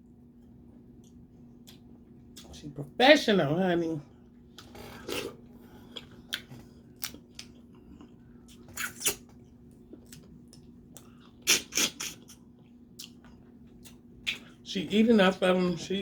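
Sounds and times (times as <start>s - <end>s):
faint steady hum: 0.0s - 16.0s
person eating: 4.5s - 14.6s.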